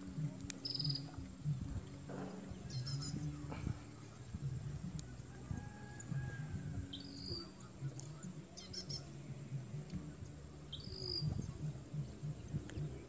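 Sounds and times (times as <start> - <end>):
small bird calling: 2.2 - 5.2, 6.8 - 9.2, 10.7 - 13.0
high bird chirps: 2.6 - 3.4, 6.9 - 9.1, 10.7 - 11.5.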